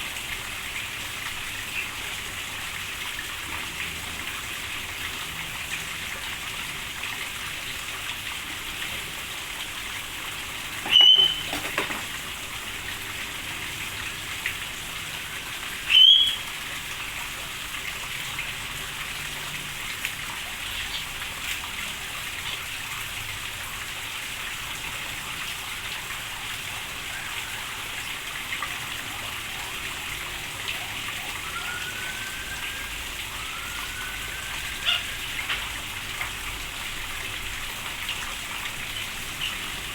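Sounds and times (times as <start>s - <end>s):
rain falling: 0.0s - 39.9s
high bird calls: 10.8s - 12.1s, 15.9s - 16.5s, 31.4s - 35.5s
faint rising bird calls: 10.8s - 12.2s, 15.9s - 16.5s, 31.1s - 35.5s.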